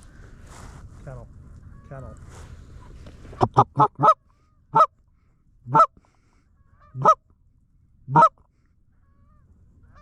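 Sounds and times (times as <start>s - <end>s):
goose honking: 3.4s - 4.9s, 5.7s - 5.9s, 6.6s - 7.2s, 8.1s - 8.4s.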